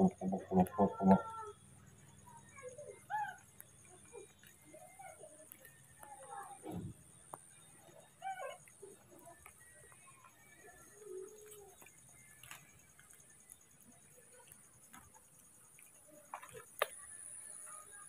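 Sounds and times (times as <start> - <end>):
low bird call: 0.0 - 1.6.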